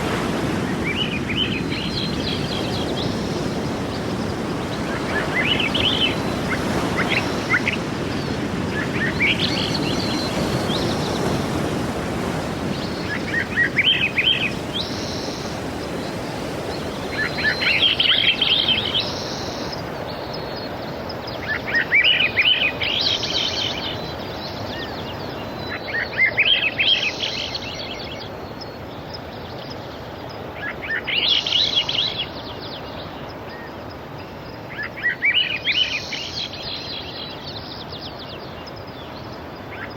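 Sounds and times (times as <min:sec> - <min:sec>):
sea waves washing: 0:00.0 - 0:25.6
songbird trilling: 0:00.9 - 0:20.7.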